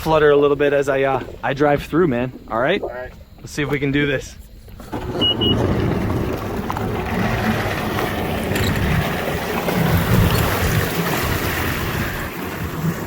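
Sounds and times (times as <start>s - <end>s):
wind buffeting microphone: 4.6s - 13.0s
jet ski engine: 4.9s - 13.0s
water rushing: 5.0s - 13.0s.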